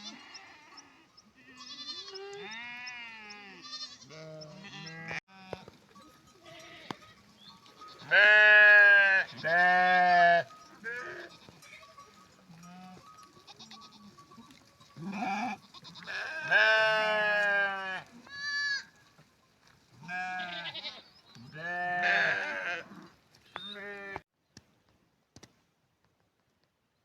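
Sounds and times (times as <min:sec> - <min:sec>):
sheep bleating: 0:00.0 - 0:05.8, 0:06.4 - 0:07.2, 0:07.9 - 0:14.3, 0:15.0 - 0:19.0, 0:20.0 - 0:24.2.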